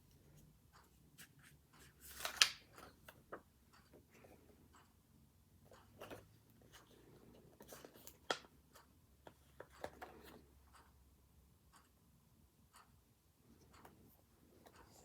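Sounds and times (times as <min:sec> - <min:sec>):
paper rustling and scratching: 0:01.2 - 0:03.2.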